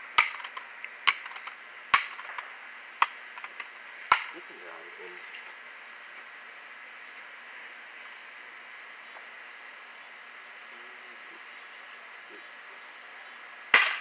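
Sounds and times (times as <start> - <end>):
faint hiss: 0.0 - 14.0
high-pitched insect chorus: 0.0 - 14.0
bb gun shot crack: 4.1 - 4.4, 13.8 - 14.0.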